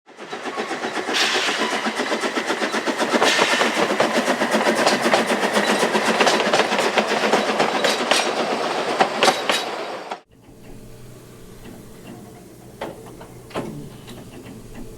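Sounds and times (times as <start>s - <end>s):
steam locomotive running gear clatter: 0.1s - 14.9s
sharp knocks: 3.0s - 8.4s.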